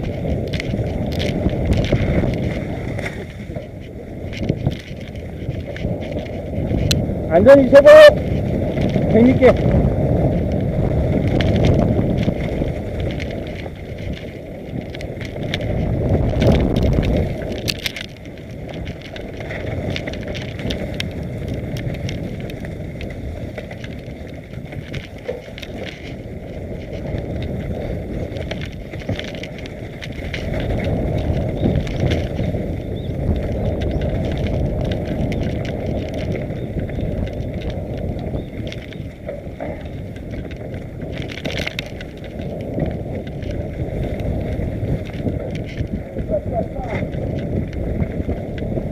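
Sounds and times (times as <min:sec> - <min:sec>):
bike rattling over rough ground: 0:00.0 - 0:48.9
wind rushing over microphone: 0:00.0 - 0:48.9.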